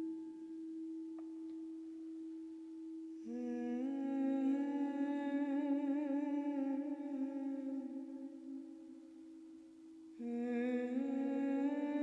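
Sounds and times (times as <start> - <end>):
woman humming: 3.2 - 8.8, 10.2 - 12.0.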